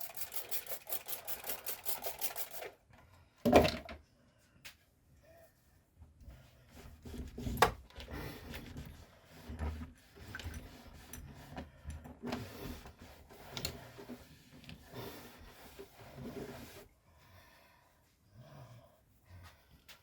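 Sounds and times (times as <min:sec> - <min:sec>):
hands rubbing and scraping parts: 0:06.7 - 0:17.0.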